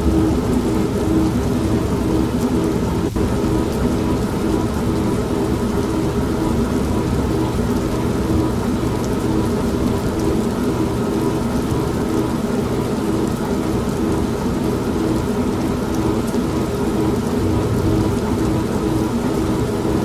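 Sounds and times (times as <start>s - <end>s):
low rumbling thunder: 0.0s - 10.8s, 17.0s - 20.0s
heavy rain: 0.0s - 20.0s
washing machine humming: 0.0s - 20.0s.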